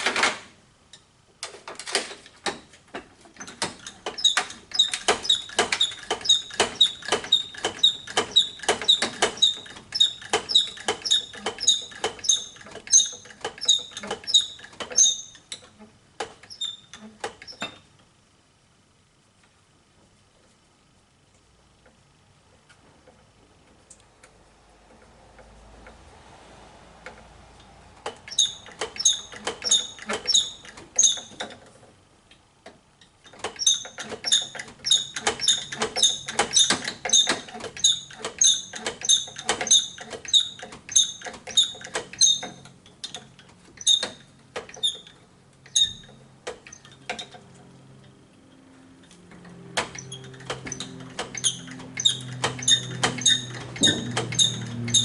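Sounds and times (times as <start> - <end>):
hand pump squeaking: 3.4 - 15.7, 16.4 - 17.8, 28.3 - 31.6, 33.2 - 47.4, 49.9 - 55.0.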